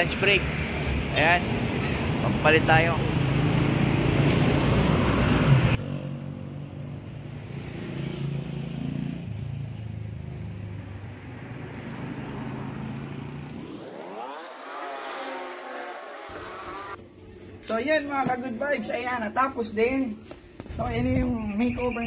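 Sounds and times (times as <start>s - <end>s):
motorcycle engines: 0.0s - 17.0s
street traffic: 0.0s - 17.6s.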